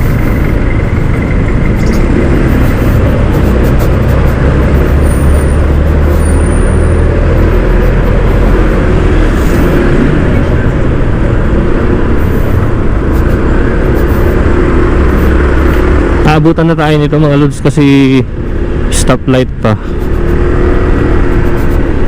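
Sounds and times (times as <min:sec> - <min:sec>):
scooter engine running: 0:00.0 - 0:06.3, 0:07.1 - 0:16.1, 0:19.9 - 0:22.0
wind rush on microphone: 0:00.0 - 0:16.2
road traffic: 0:00.0 - 0:22.0.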